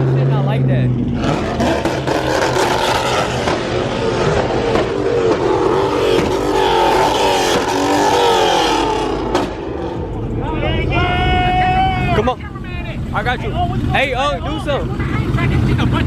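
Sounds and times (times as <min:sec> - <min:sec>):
car engine revving hard: 0:00.0 - 0:10.3.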